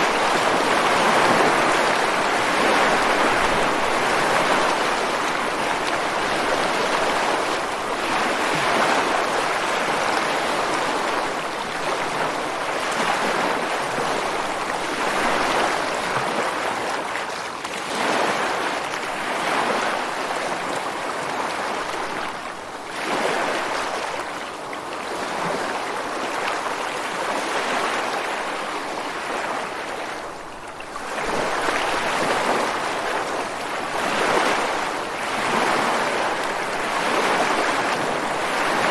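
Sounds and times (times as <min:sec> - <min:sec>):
ocean waves washing ashore: 0:00.0 - 0:38.9.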